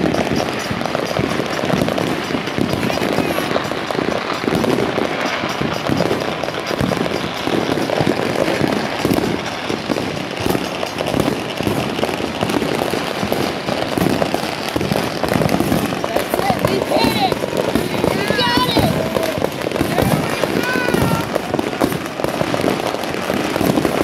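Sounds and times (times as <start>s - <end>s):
fireworks banging and crackling: 0.0s - 24.0s.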